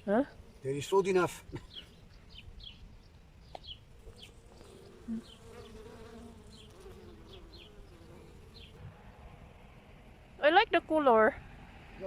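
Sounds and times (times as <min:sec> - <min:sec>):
small bird chirping: 0:01.2 - 0:08.8
bee buzzing: 0:03.5 - 0:09.0.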